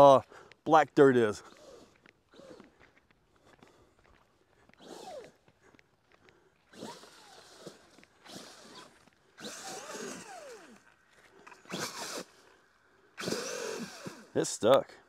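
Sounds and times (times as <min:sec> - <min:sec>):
electric motor whining: 0:01.4 - 0:02.8, 0:04.7 - 0:05.4, 0:06.6 - 0:14.4.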